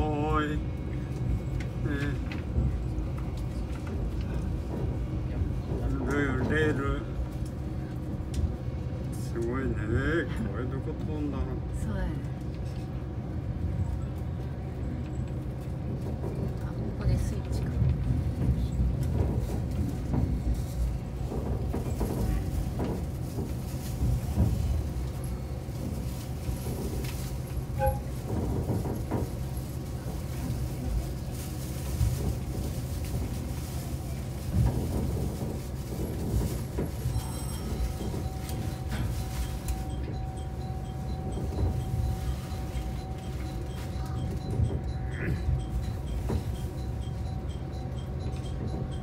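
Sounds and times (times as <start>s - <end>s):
railcar rumbling: 0.0s - 49.0s
knocks and rattles: 15.9s - 49.0s.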